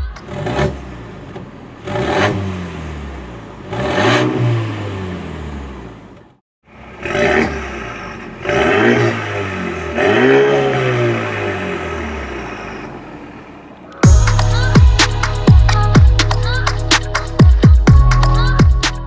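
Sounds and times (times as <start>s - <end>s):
car engine revving in blips: 0.0s - 13.8s.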